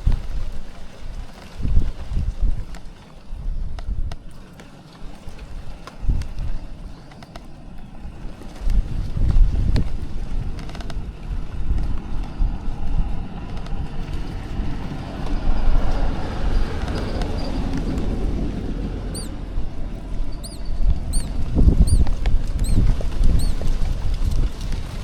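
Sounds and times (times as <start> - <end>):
wind buffeting microphone: 0.0 - 25.0
small bird chirping: 19.1 - 19.4, 20.3 - 23.6.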